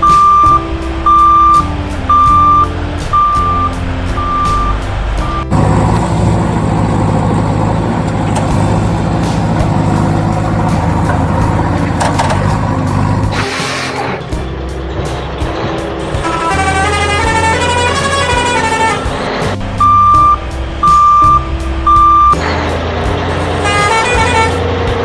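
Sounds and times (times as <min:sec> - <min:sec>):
truck reversing alarm beeps: 0:00.0 - 0:05.6, 0:19.8 - 0:22.4
low engine rumble: 0:00.0 - 0:25.0.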